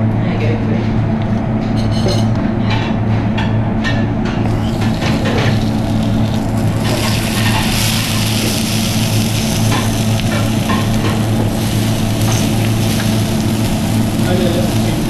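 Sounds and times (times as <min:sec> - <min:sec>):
kitchen extraction hum: 0:01.4 - 0:15.0
spring onions sizzling on griddle: 0:04.5 - 0:15.0.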